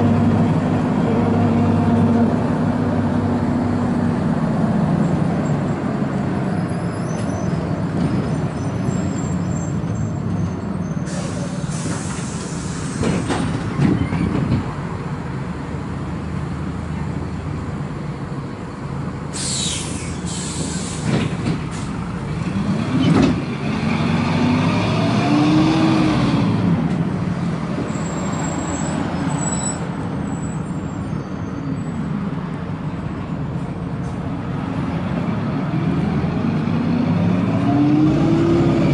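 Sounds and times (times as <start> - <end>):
diesel bus engine running: 0.0 - 38.9
air brakes hissing: 10.8 - 13.6, 19.3 - 22.0.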